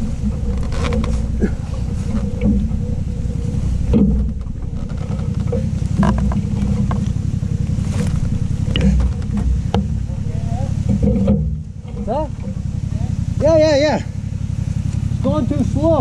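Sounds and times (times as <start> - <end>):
short knocks: 0.0 - 12.8
motorcycle engine at low revs: 0.0 - 16.0.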